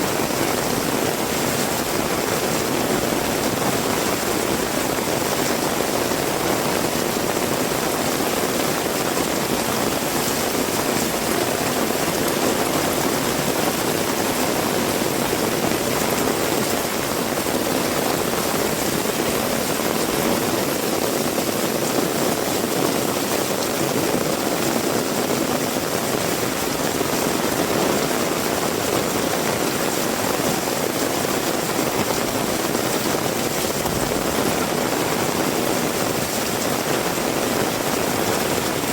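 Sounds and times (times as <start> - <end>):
heavy rain hissing: 0.0 - 38.9.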